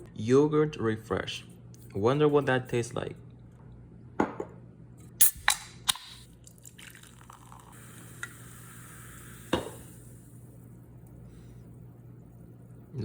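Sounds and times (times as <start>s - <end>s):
object set down knock: 4.2s - 4.6s
carbonated water fizzing and pouring: 6.4s - 10.4s.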